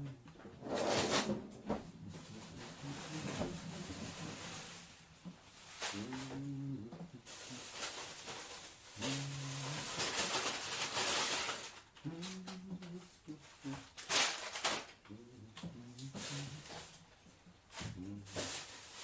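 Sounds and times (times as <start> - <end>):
muffled voice: 1.9 - 4.7, 5.9 - 7.3, 9.0 - 10.0, 12.0 - 13.9, 15.1 - 16.9, 17.8 - 18.6.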